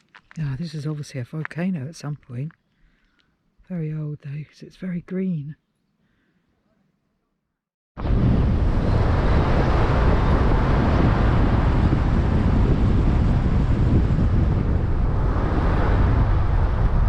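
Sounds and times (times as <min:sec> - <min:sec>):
strong wind buffeting microphone: 0:08.0 - 0:17.0.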